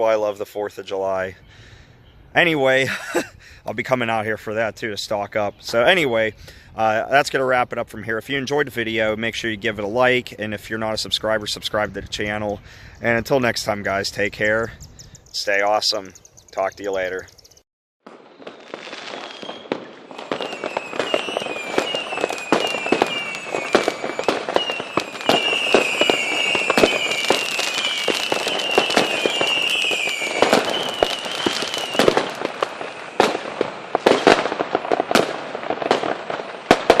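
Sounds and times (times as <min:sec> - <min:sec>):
fireworks crackling and banging: 0:18.0 - 0:37.0
falling firework whistles: 0:18.1 - 0:37.0.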